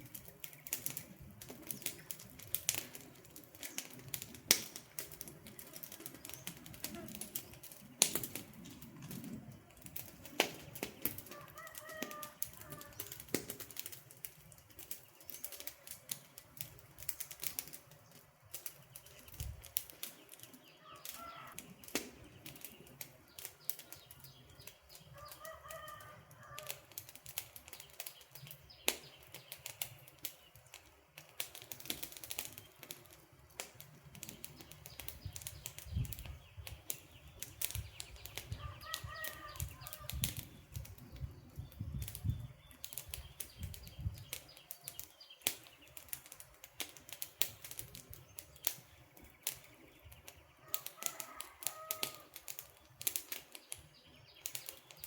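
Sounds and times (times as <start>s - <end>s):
wood fire crackling: 0.0s - 55.0s
faint bird calls: 5.6s - 7.7s, 20.7s - 26.9s, 34.6s - 46.1s.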